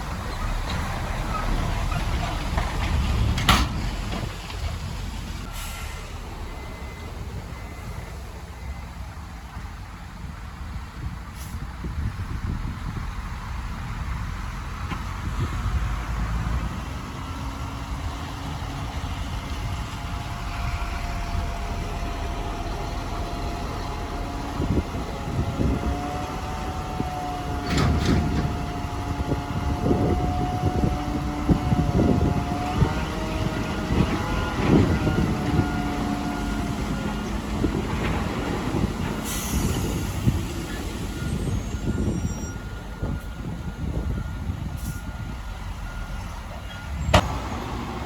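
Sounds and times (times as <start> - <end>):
machinery clanks and knocks: 0.0 - 4.8, 27.6 - 28.8
diesel engines whining: 0.0 - 48.0.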